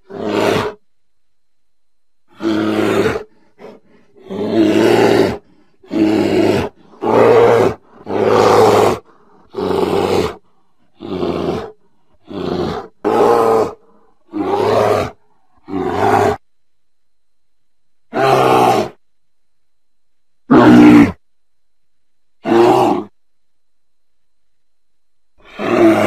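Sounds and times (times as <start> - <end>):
bear roaring: 0.0 - 0.8, 2.3 - 16.4, 18.1 - 19.0, 20.5 - 21.2, 22.4 - 23.2, 25.4 - 26.0.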